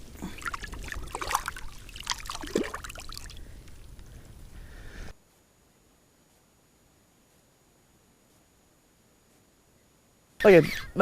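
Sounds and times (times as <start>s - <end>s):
water splashing and dribbling: 0.0s - 3.9s.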